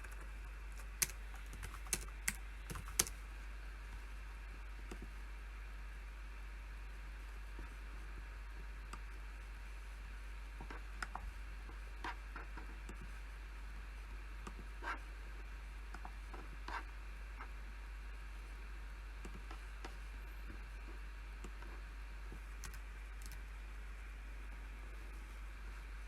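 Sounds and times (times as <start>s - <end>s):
keyboard and mouse clicks: 0.0s - 3.1s, 22.6s - 23.4s
steady low hum: 0.0s - 26.0s.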